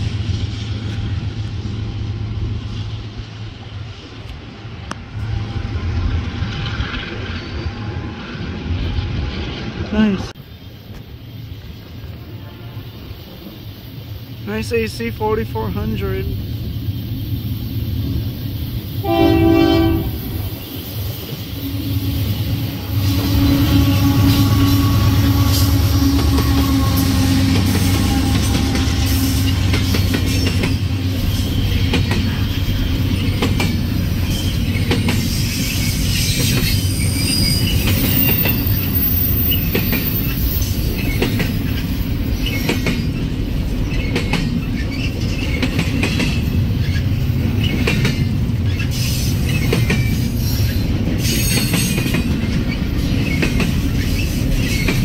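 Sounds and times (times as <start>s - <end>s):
diesel locomotive engines: 0.0s - 55.0s
train wheels clicking over rail joints: 16.5s - 55.0s
locomotive horn blast: 19.0s - 20.6s, 22.9s - 29.8s.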